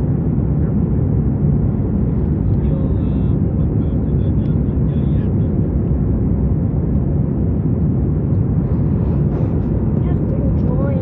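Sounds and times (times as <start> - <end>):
airliner engine drone: 0.0 - 11.0
rushing air: 6.2 - 10.1.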